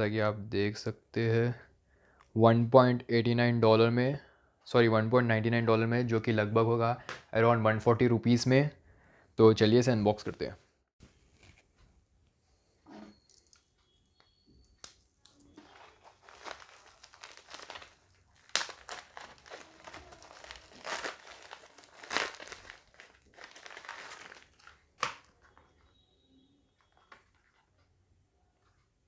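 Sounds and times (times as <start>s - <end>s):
packaging crinkling and rustling: 14.9s - 26.0s.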